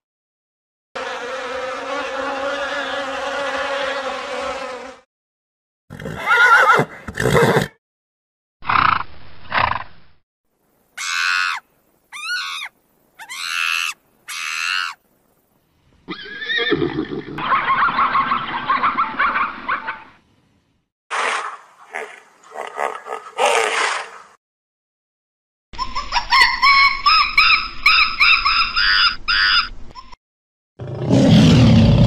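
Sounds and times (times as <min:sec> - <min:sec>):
bee swarm buzzing: 0:01.0 - 0:05.0
horses whinnying: 0:05.9 - 0:07.7, 0:16.1 - 0:17.4
high-pitched animal calls: 0:11.0 - 0:15.0, 0:25.8 - 0:30.2.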